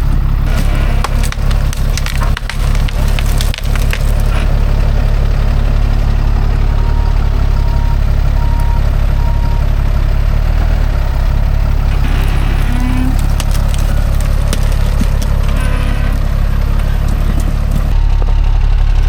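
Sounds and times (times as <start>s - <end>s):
diesel engine running: 0.0s - 19.0s
tree branch cracking and snapping: 0.3s - 6.8s, 11.8s - 17.9s.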